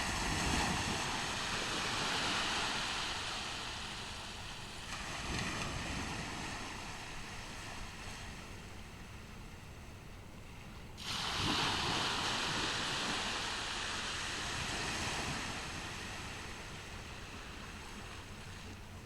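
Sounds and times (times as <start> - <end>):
wave breaking on a beach: 0.0 - 9.2, 11.0 - 19.0
low rush of surf: 0.0 - 9.8, 10.4 - 19.0.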